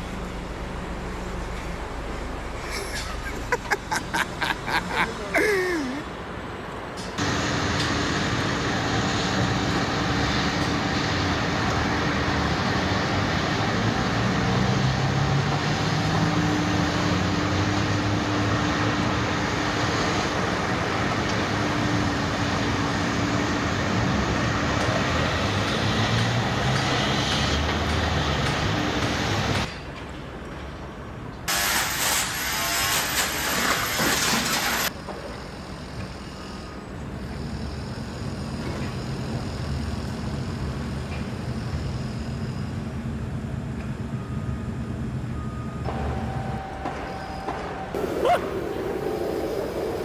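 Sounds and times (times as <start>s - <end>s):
heavy machinery engine running: 0.0s - 4.0s.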